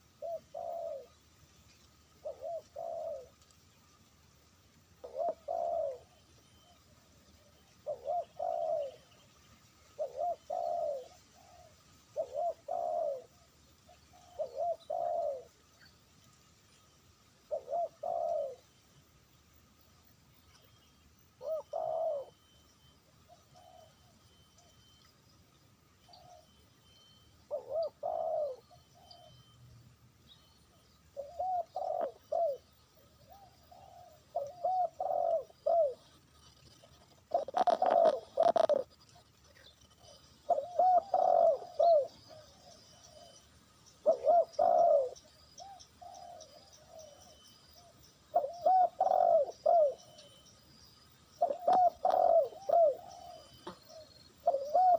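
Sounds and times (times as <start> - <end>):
doves cooing: 0.0 - 1.2, 2.1 - 3.5, 5.0 - 9.3, 9.9 - 15.7, 17.4 - 18.8, 21.3 - 25.0, 26.0 - 29.6, 30.6 - 54.9
small birds chirping: 0.0 - 54.9.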